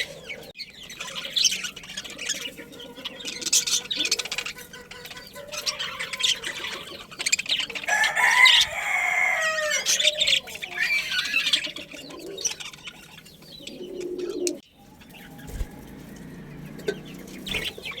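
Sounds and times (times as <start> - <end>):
birds chirping and calling: 0.0 - 18.0
rooster crowing: 7.8 - 11.4, 14.9 - 17.8.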